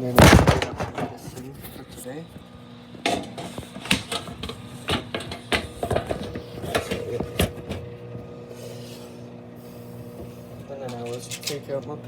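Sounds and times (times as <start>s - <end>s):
clicks and knocks of small objects: 0.0s - 1.6s
microwave oven humming: 0.0s - 12.0s.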